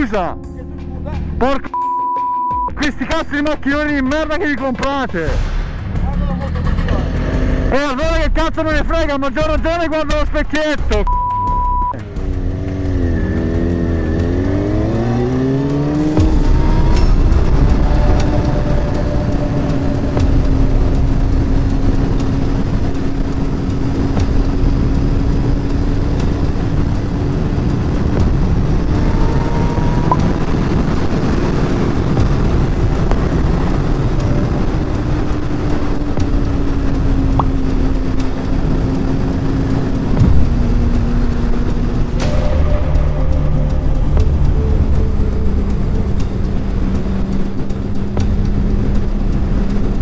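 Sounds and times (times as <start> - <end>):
motorcycle engine cruising: 3.7 - 11.0, 11.9 - 50.0
wind rush: 14.3 - 50.0.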